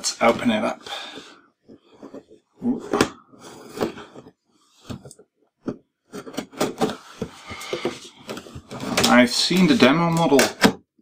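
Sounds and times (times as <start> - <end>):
packaging rustling and scraping: 6.1 - 9.8.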